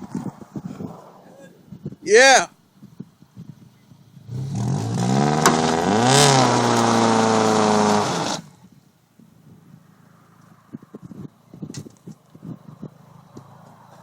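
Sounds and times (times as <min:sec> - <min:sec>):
car engine revving hard: 0:04.2 - 0:08.5.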